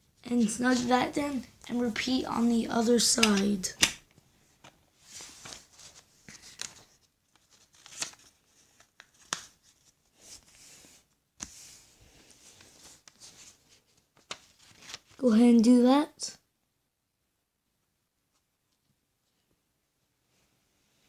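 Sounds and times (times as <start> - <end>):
paper rustling and crinkling: 4.6 - 15.2
paper crackles: 5.1 - 10.7, 12.2 - 15.2.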